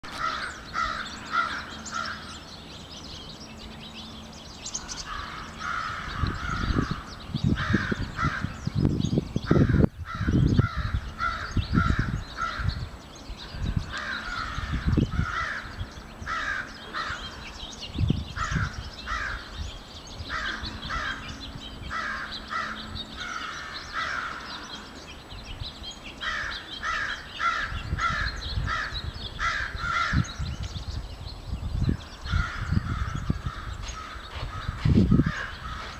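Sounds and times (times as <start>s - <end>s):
crows cawing: 0.1s - 2.4s, 4.8s - 8.5s, 9.5s - 12.8s, 13.9s - 17.5s, 18.4s - 19.6s, 20.3s - 25.0s, 26.2s - 30.4s, 32.2s - 35.9s.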